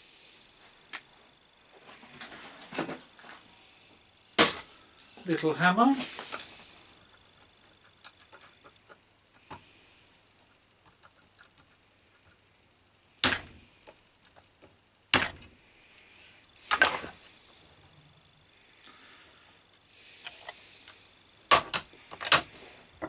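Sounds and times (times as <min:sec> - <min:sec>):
faint clicks of small parts: 0:00.9 - 0:01.1, 0:06.0 - 0:09.7, 0:10.4 - 0:12.4, 0:13.2 - 0:15.4, 0:16.6 - 0:17.2, 0:19.7 - 0:22.5.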